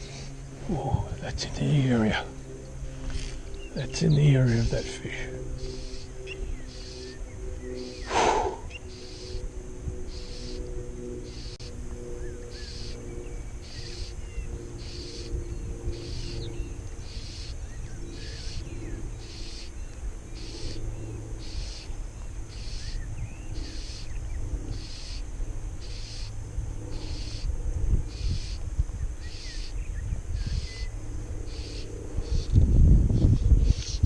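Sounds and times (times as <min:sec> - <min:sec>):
wind rumble on microphone: 0:00.0 - 0:34.0
high buzzy call: 0:03.8 - 0:09.5
short bird chirps: 0:08.0 - 0:08.8.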